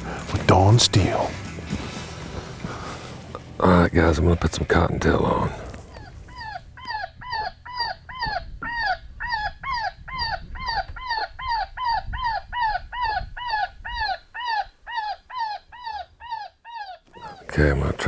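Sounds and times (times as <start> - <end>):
rabbit distress squeals: 5.5 - 17.5.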